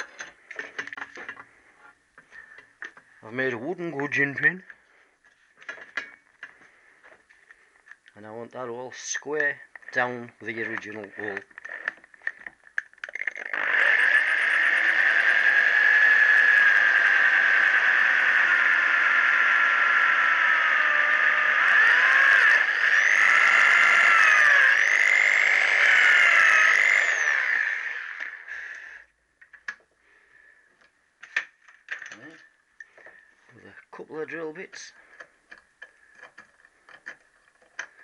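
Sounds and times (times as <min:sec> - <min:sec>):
small clicks: 0:10.7 - 0:13.6
electric drill whining: 0:13.1 - 0:29.0.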